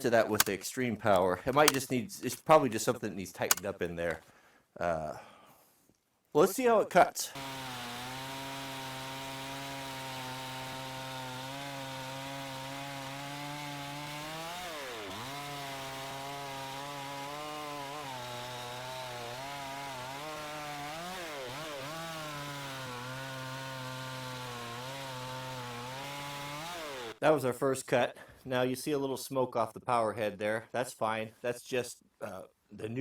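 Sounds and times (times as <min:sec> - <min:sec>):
chainsaw cutting through wood: 0:07.3 - 0:27.2.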